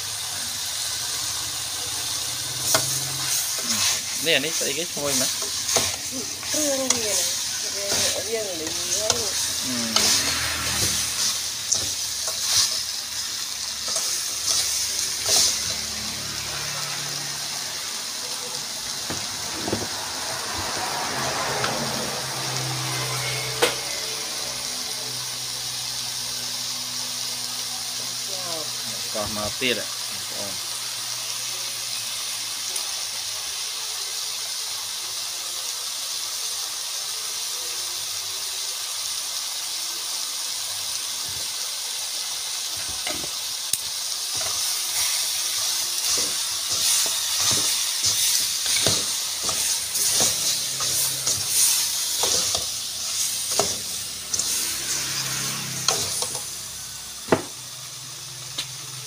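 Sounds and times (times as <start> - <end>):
ribs sizzling in a pot: 0.0 - 59.0
metal spoon scraping a pot: 46.0 - 55.1.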